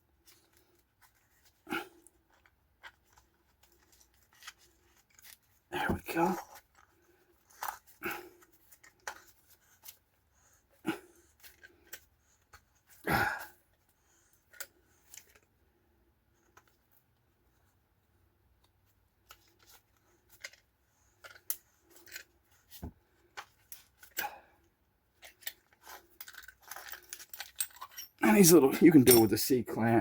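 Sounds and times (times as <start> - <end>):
clinks of hand tools and parts: 19.2 - 30.0.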